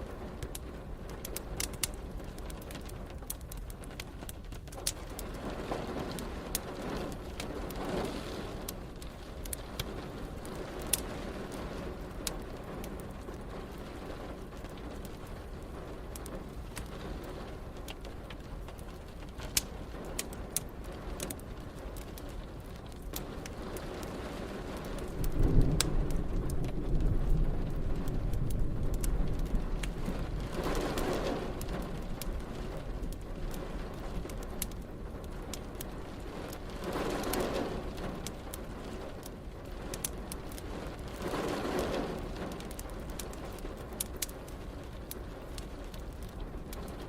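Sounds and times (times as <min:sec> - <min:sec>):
steady rain: 0:00.0 - 0:47.0
wood fire crackling: 0:00.0 - 0:47.0
thunder rumble: 0:23.2 - 0:44.0.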